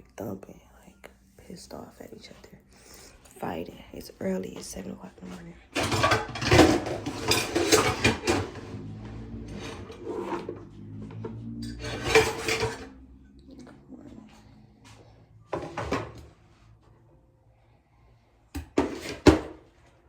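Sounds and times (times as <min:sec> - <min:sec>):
dishes and cutlery clattering: 0:05.7 - 0:08.8, 0:11.6 - 0:12.9.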